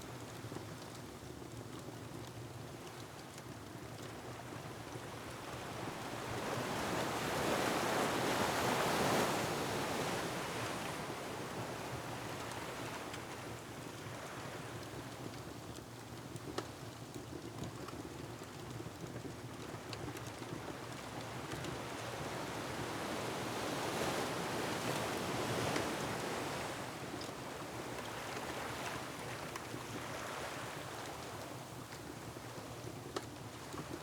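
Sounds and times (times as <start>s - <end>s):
wind: 0.0s - 34.0s
wood fire pops and crackles: 14.6s - 22.3s.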